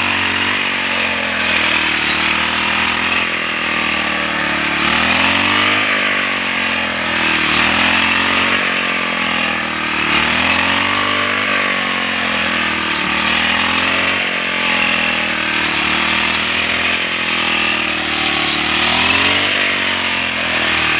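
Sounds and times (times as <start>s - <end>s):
small engine running: 0.0s - 20.9s.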